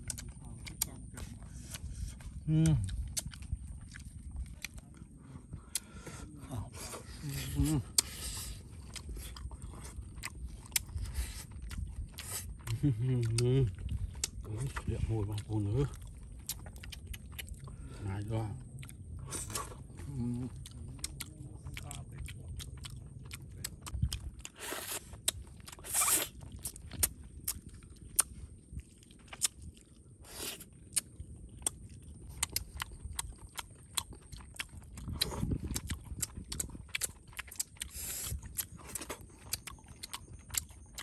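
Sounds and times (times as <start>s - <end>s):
lip-smacking and mouth clicks: 0.0s - 1.0s, 1.6s - 6.0s, 16.2s - 17.7s, 18.9s - 28.4s, 29.1s - 29.7s, 30.6s - 41.0s
people chewing: 0.0s - 41.0s.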